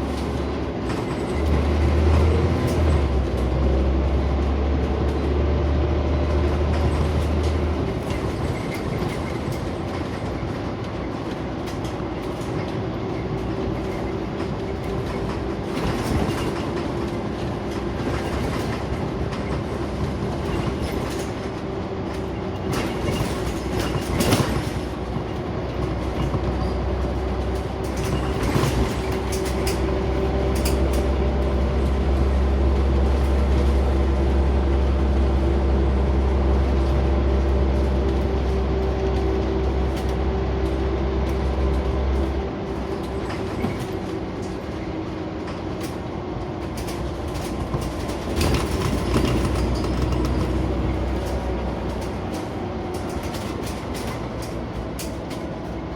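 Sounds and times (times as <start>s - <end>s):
bus engine drone with whine: 0.0s - 55.9s
body rattles and knocks: 6.3s - 34.1s, 41.3s - 55.9s.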